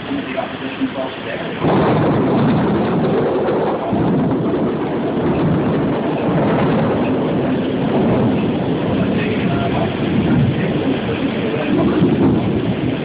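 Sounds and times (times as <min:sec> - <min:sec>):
heavy rain pouring: 0:00.0 - 0:13.0
rolling thunder rumble: 0:00.0 - 0:13.0.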